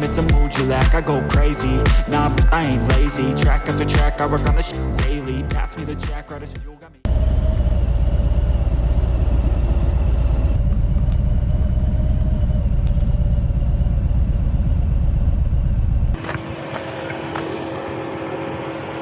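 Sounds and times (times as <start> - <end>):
trike engine and road rumble: 7.1 - 17.4.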